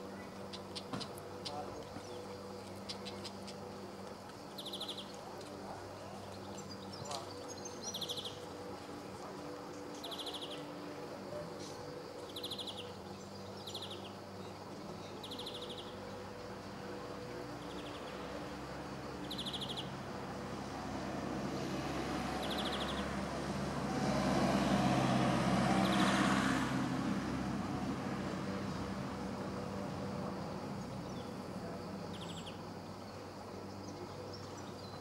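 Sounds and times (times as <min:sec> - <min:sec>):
bird singing rapid trills: 0:00.0 - 0:03.8, 0:04.4 - 0:05.2, 0:05.9 - 0:08.7, 0:09.7 - 0:10.8, 0:11.6 - 0:16.2, 0:17.5 - 0:18.2, 0:19.1 - 0:20.1, 0:22.3 - 0:23.2, 0:30.7 - 0:35.0
low engine hum: 0:00.0 - 0:35.0.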